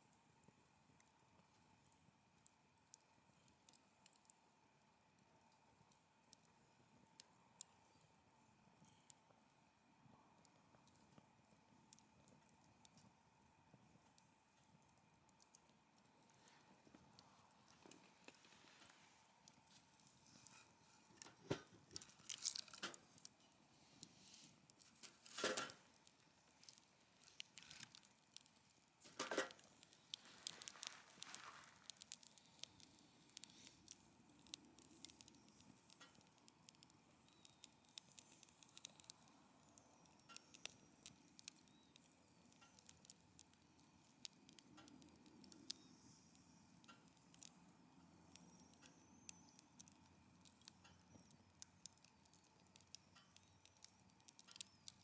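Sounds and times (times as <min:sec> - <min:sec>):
wood fire crackling: 0:00.0 - 0:55.0
loud fire pops: 0:29.0 - 0:32.5.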